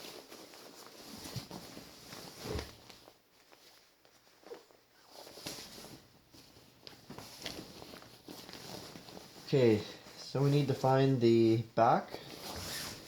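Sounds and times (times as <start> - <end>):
nylon snowsuit rustling: 0.0 - 13.0.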